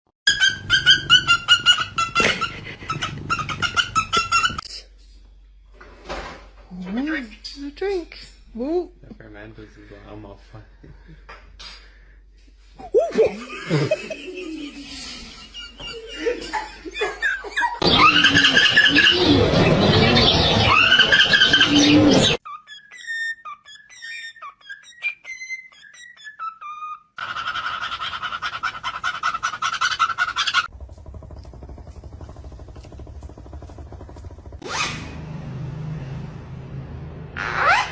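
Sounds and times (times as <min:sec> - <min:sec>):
parrot squeaky calls: 0:00.3 - 0:04.6, 0:17.0 - 0:30.7, 0:37.4 - 0:37.9.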